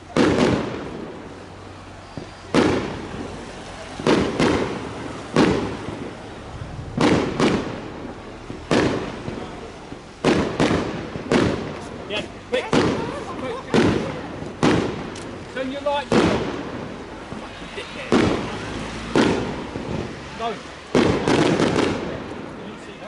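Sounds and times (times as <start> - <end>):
fireworks shells bursting: 4.0 - 20.2.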